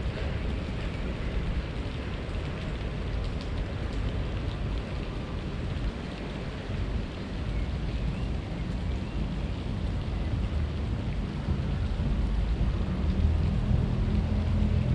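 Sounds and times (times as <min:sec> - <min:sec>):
faint light ticks: 0:01.8 - 0:05.1
low rumble: 0:09.2 - 0:14.9.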